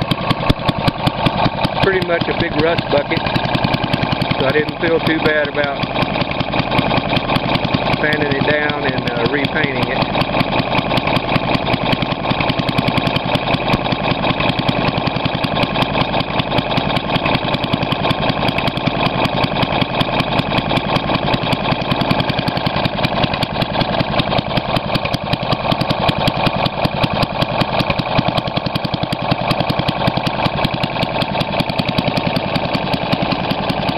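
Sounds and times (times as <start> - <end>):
small engine idling: 0.0 - 33.9.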